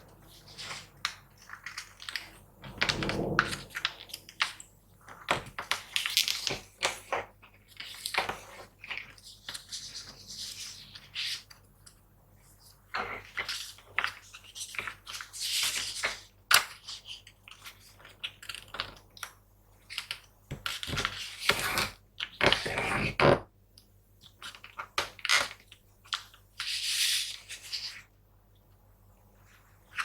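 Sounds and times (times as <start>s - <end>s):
paper crinkling and creasing: 0.2s - 11.5s.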